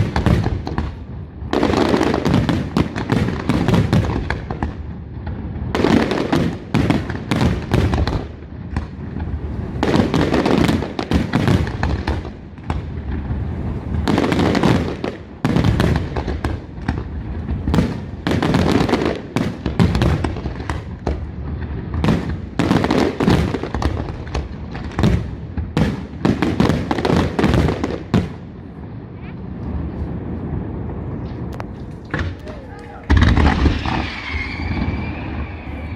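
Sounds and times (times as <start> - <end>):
firework shells bursting: 31.2 - 35.9.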